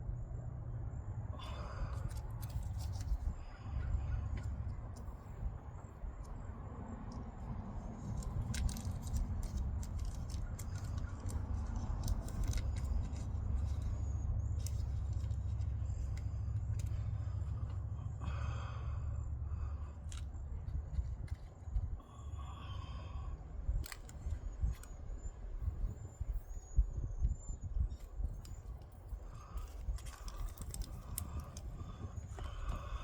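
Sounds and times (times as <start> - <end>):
low rumble: 0.0 - 33.0
small clicks and scrapes: 1.4 - 6.5, 7.1 - 17.8, 19.8 - 22.1, 23.8 - 26.8, 27.9 - 33.0.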